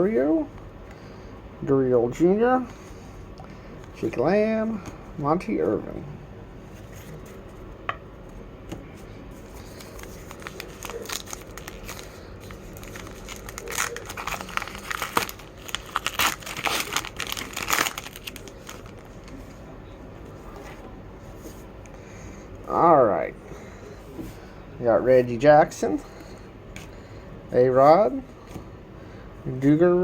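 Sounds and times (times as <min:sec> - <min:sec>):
wrapper crinkling and tearing: 0:09.5 - 0:19.6.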